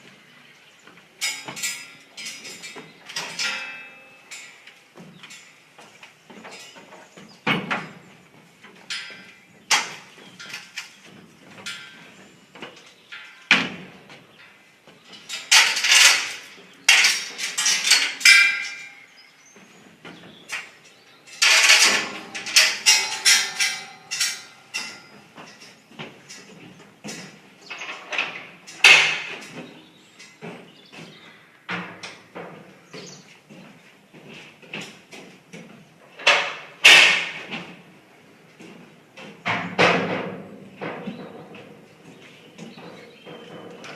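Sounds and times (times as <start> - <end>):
metal bangs and clatter: 15.1 - 19.2, 20.1 - 32.6, 36.2 - 37.8, 39.3 - 43.9.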